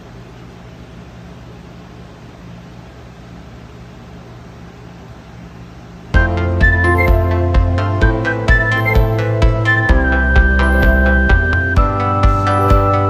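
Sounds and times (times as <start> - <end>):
steady low hum with hiss: 0.0 - 13.0
background music: 6.2 - 13.0.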